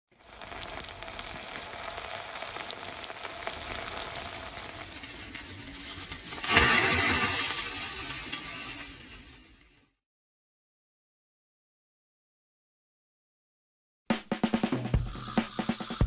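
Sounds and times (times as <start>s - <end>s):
bacon sizzling on a griddle: 0.1s - 9.8s.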